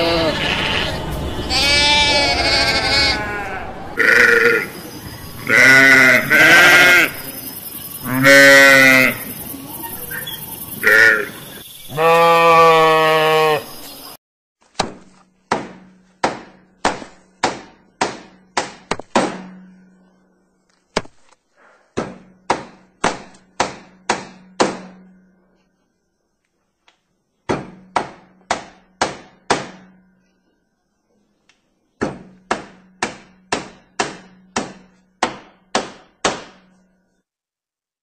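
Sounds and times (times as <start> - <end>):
farm animal call: 0.0 - 14.0
hammer blows ringing: 15.5 - 20.1.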